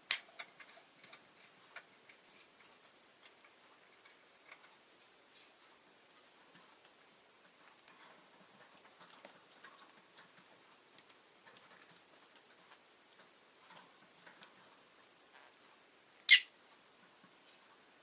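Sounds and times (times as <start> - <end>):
faint clicks and ticks: 0.0 - 17.9
lovebird sharp call: 16.3 - 16.5.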